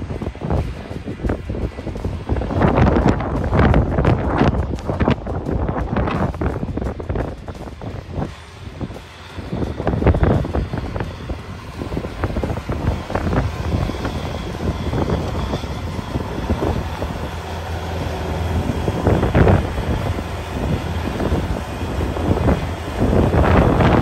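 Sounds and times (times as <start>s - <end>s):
vehicle engine rumble: 0.0s - 24.0s
wind buffeting microphone: 0.0s - 24.0s.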